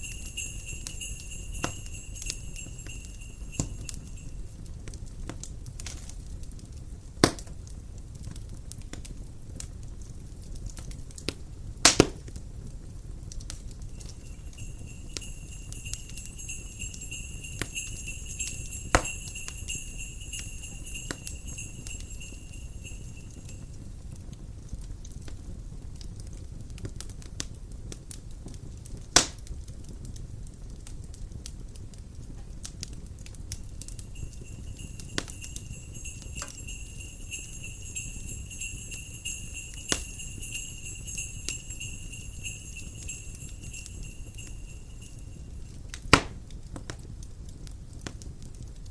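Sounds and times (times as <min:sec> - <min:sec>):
small bells jingling: 0:00.0 - 0:04.8, 0:13.8 - 0:24.0, 0:33.5 - 0:45.9
wood fire crackling: 0:00.0 - 0:48.9
loud fire crack: 0:00.1 - 0:44.1, 0:45.0 - 0:48.9.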